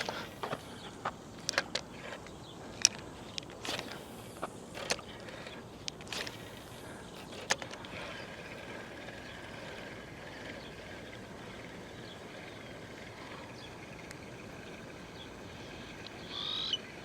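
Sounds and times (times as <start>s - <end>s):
fishing tackle clicks and knocks: 0.0s - 6.6s, 7.2s - 8.0s
fishing reel whirring: 2.8s - 17.0s.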